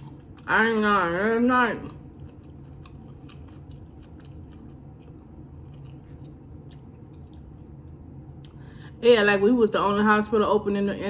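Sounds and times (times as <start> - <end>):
person chewing food: 0.0 - 0.5, 1.7 - 8.7
low steady hum: 0.0 - 11.0.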